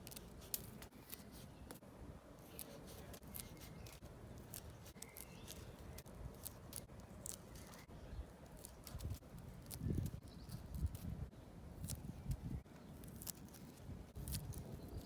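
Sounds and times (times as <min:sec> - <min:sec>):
scissors snipping stems: 0:02.4 - 0:07.9.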